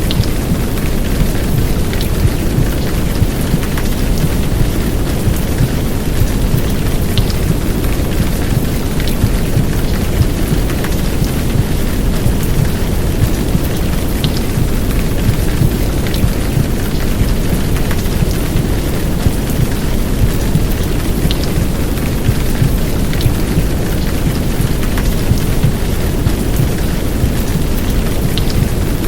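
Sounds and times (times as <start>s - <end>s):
heavy rain downpour: 0.0s - 29.0s.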